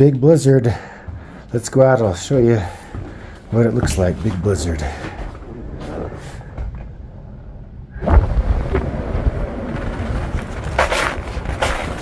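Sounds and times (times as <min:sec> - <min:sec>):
low muffled rumble: 0:02.3 - 0:12.0
wind buffeting microphone: 0:05.4 - 0:12.0.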